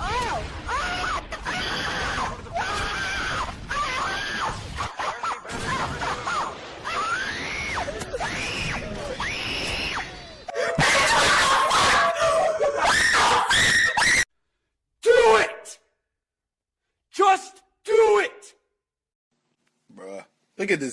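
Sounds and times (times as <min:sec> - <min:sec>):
loud harsh screaming: 0:00.0 - 0:14.3
high-pitched screams or wails: 0:06.8 - 0:14.3.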